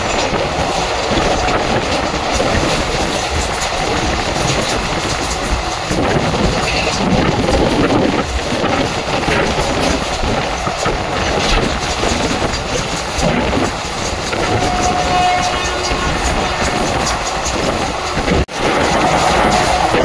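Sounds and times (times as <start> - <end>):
train wheels clattering on rails: 0.0 - 20.0
brief steady tone: 14.4 - 16.9.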